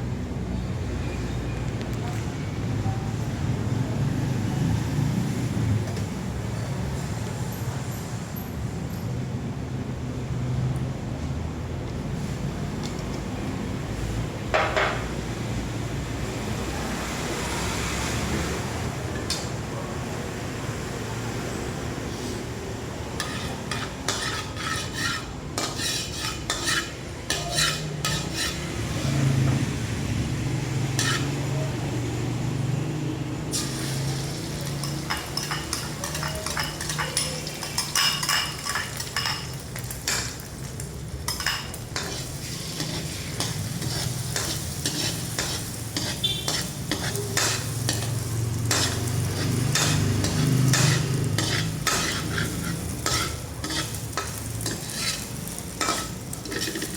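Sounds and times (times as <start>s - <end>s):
spatula scraping metal pan: 23.2s - 29.5s, 30.9s - 31.5s, 33.6s - 40.4s, 41.3s - 56.9s
food sizzling: 23.2s - 32.0s, 33.5s - 56.9s.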